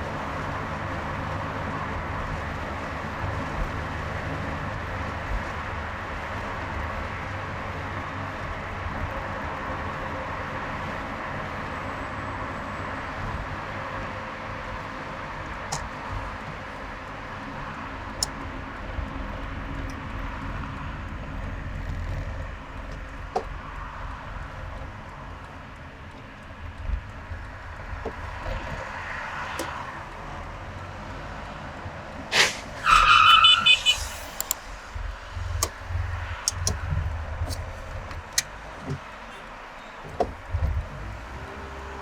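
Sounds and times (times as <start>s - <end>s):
car road and engine rumble: 0.0s - 42.0s
sharp loud sound: 32.3s - 34.8s
sharp clicks: 32.3s - 39.1s
loud high-pitched tone: 32.8s - 34.5s.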